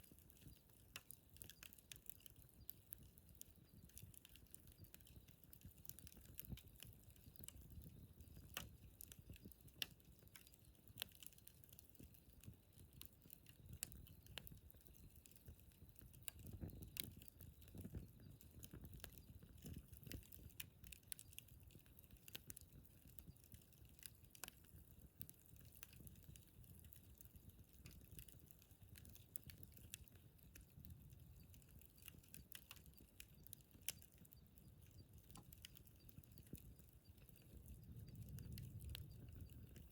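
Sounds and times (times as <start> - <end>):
campfire crackling and popping: 0.0 - 39.9
low rush of burning: 37.7 - 39.9.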